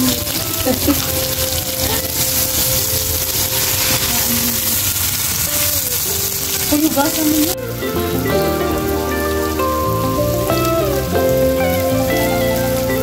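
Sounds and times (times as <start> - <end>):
meat sizzling in a wok: 0.0 - 13.0
soft background music: 5.9 - 13.0.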